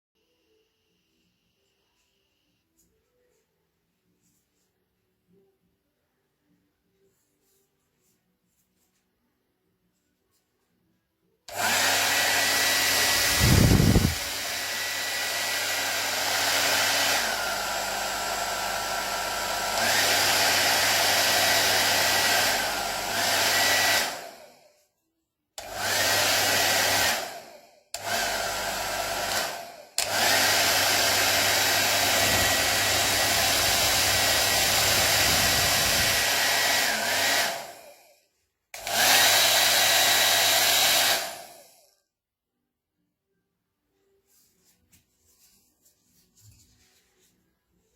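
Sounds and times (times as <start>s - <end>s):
hair dryer running: 11.5s - 24.7s, 25.6s - 38.2s, 38.8s - 41.9s.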